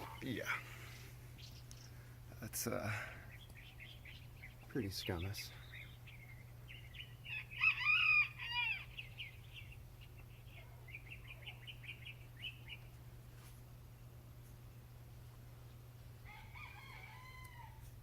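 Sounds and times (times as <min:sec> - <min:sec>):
rooster crowing: 0:07.3 - 0:09.0, 0:16.2 - 0:18.0.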